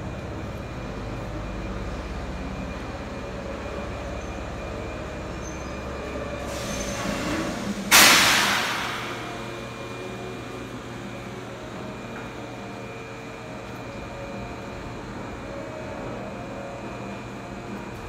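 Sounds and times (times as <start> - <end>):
electric train rumble: 0.0 - 18.0
steady hum: 0.0 - 18.0
train brakes air hiss: 6.3 - 10.0.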